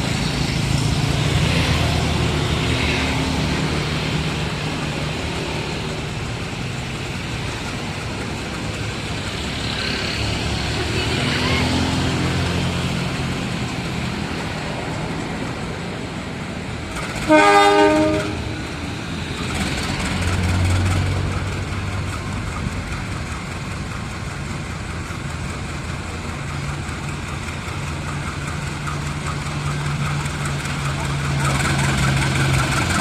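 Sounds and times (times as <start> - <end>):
train rumbling on the line: 0.0 - 33.0
diesel locomotive horn blast: 17.2 - 18.8.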